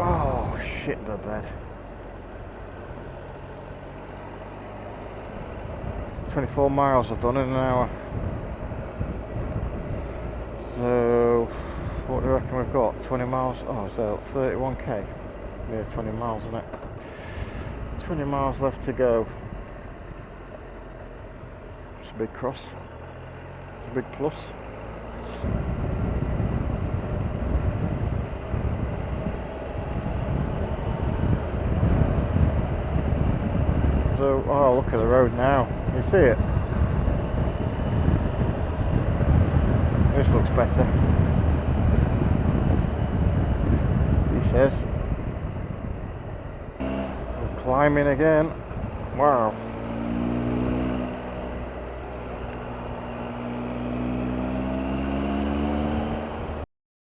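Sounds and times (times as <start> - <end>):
motorcycle engine running: 0.0 - 56.6
wind noise on microphone: 8.0 - 10.6, 25.4 - 51.8.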